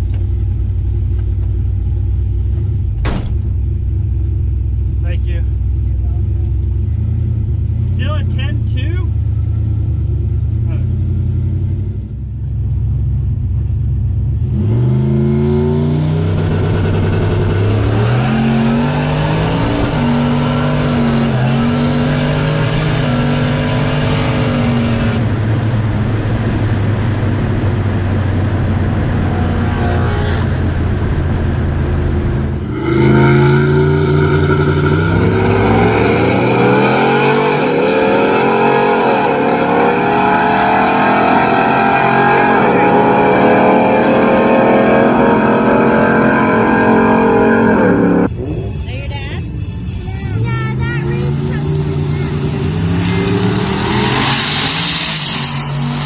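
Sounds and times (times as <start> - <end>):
truck engine accelerating: 0.0 - 56.0
higher wavering sound: 32.6 - 41.1.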